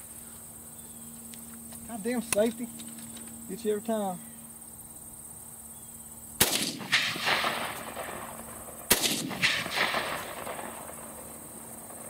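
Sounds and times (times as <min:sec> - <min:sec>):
gunshot echo report: 0:06.4 - 0:12.0
rifle shots: 0:06.4 - 0:12.0.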